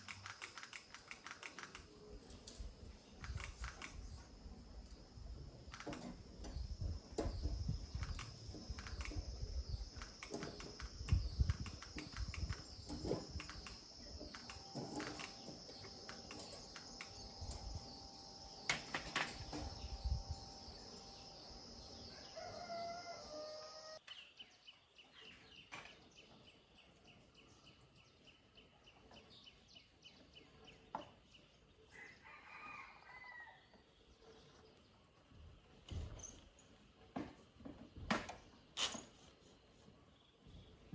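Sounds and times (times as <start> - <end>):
scattered clicks and knocks: 0.0 - 4.2, 5.5 - 20.0
steady high-pitched whine: 0.0 - 24.0
rooster crowing: 22.1 - 24.0, 31.9 - 33.6.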